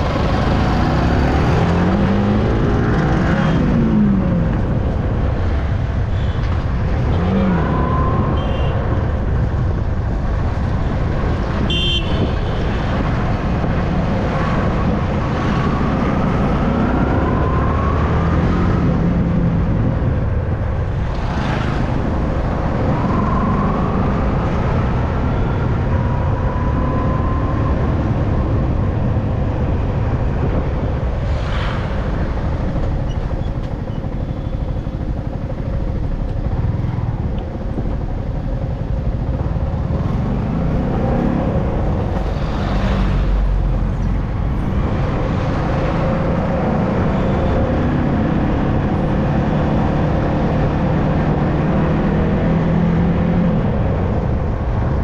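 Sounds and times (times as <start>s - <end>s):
traffic passing: 0.0s - 55.0s
wind over microphone: 0.0s - 55.0s
motorcycle engine running: 32.3s - 45.3s.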